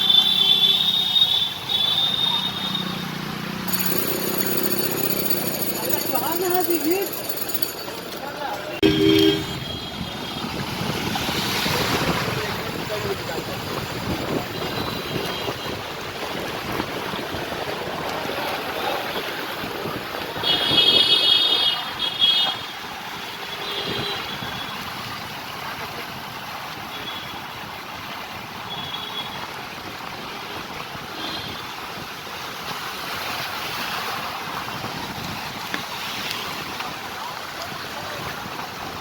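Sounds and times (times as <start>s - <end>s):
road traffic rushing: 0.0s - 28.8s
loud vehicle horn: 8.8s - 10.5s, 20.4s - 22.6s.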